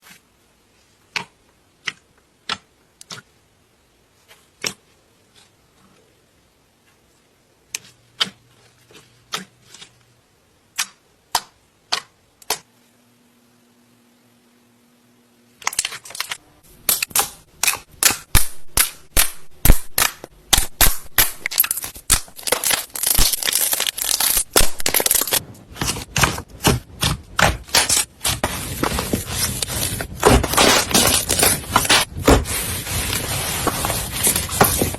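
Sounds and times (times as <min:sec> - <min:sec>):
slime popping and crackling: 0:17.6 - 0:34.9.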